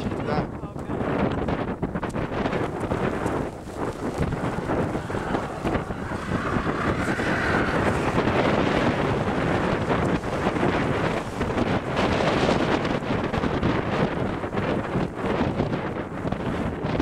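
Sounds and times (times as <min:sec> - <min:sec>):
wind buffeting microphone: 0:00.0 - 0:17.0
faint whine: 0:03.6 - 0:13.4.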